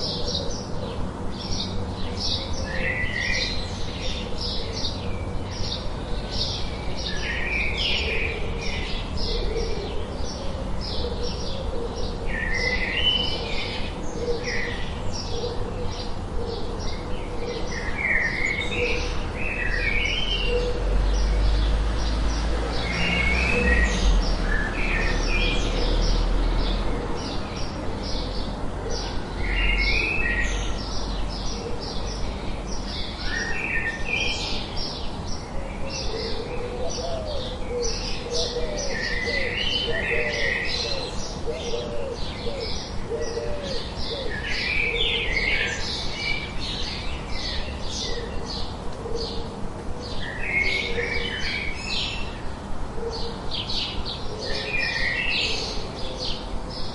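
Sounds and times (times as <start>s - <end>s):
birds chirping and calling: 0.0s - 56.9s.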